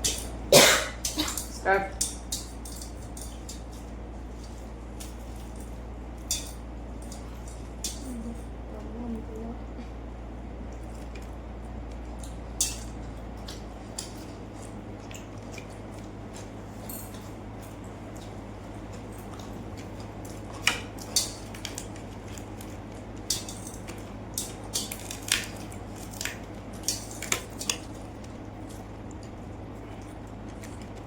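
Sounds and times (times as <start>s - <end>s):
steady low hum: 0.0s - 31.0s
wet chewing: 10.6s - 31.0s
sharp clicks and crunches: 19.0s - 31.0s.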